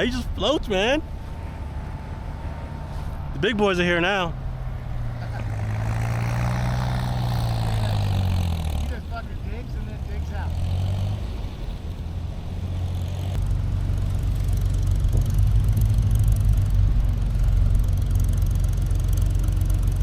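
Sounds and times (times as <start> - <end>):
vehicle engine low drone: 0.0 - 20.0.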